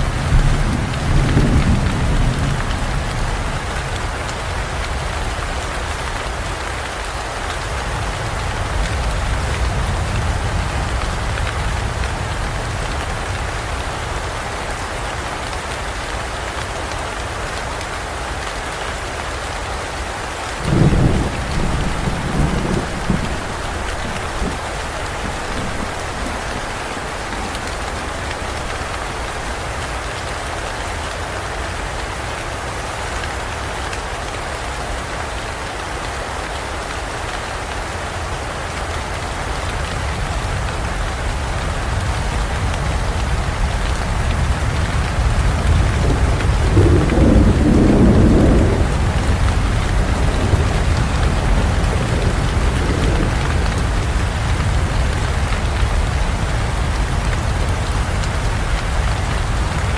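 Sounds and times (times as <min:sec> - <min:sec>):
thunder rumbling: 0:00.0 - 0:05.4, 0:20.6 - 0:30.0, 0:41.9 - 0:59.9
heavy rain falling: 0:00.0 - 0:59.9.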